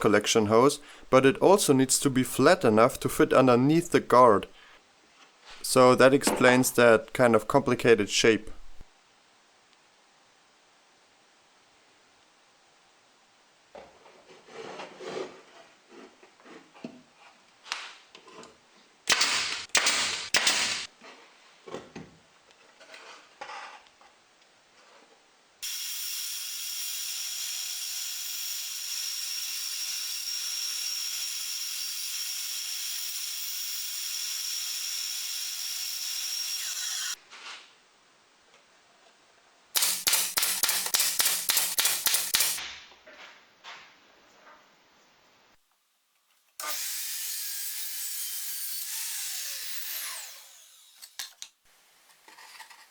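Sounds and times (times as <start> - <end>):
power tool running: 25.6 - 37.2, 39.8 - 42.6, 46.6 - 51.2.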